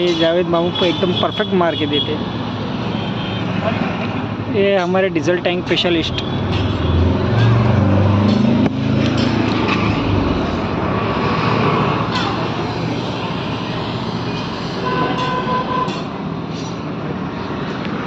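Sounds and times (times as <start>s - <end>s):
welding rushing noise: 10.0s - 15.8s.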